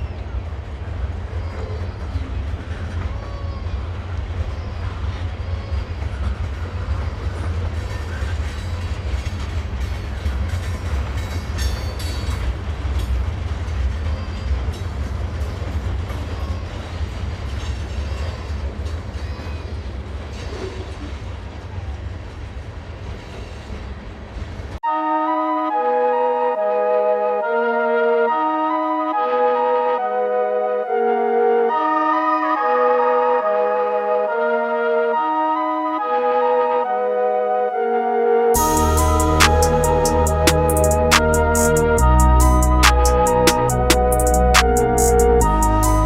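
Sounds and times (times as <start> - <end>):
freight train rumbling: 0.0 - 24.8, 38.6 - 46.0.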